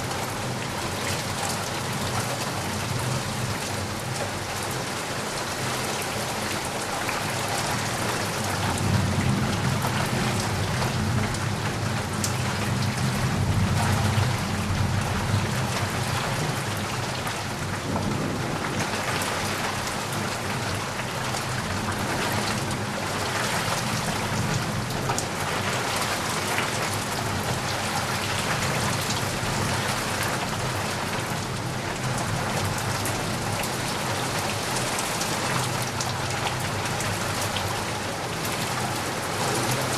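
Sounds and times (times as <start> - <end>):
steady rain falling: 0.0 - 39.9
thunder rumbling: 17.8 - 20.8.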